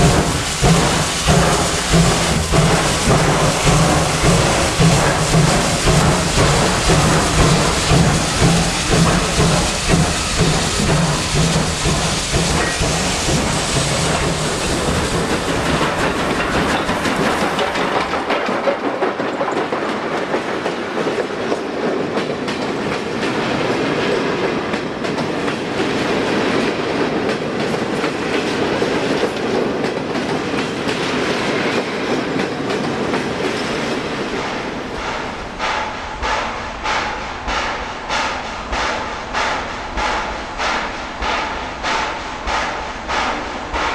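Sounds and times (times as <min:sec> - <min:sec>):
wagons rail clatter: 0:00.0 - 0:21.7
steam train pulsing rumble: 0:00.0 - 0:43.9.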